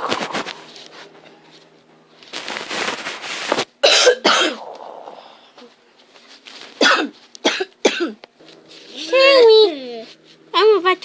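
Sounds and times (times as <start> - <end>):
child coughing and hacking: 3.8 - 4.7, 6.8 - 8.2.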